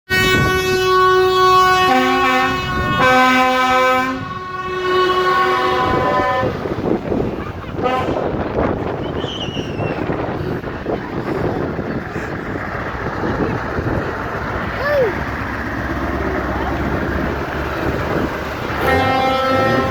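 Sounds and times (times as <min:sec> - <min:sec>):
high horn note: 0:00.1 - 0:06.8, 0:07.8 - 0:08.3, 0:18.7 - 0:19.9
lower horn blasts: 0:00.1 - 0:06.9, 0:18.7 - 0:19.9
vehicle engines rumbling: 0:00.1 - 0:19.9
wind buffeting microphone: 0:00.1 - 0:19.9.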